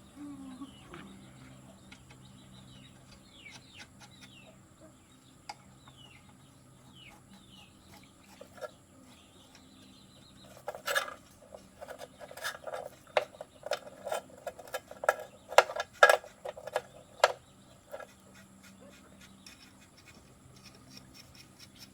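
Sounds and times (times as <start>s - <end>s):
small birds chirping: 0.0s - 21.9s
clicks and knocks on engine parts: 5.5s - 18.3s.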